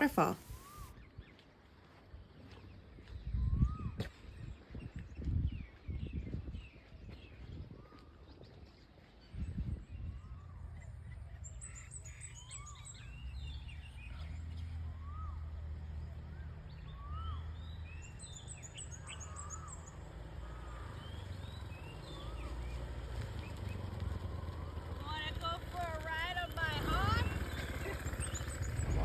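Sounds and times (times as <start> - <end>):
birds chirping: 0.0 - 0.9, 16.1 - 29.0
low steady rumble: 23.9 - 29.0
rapid high twittering: 26.6 - 29.0.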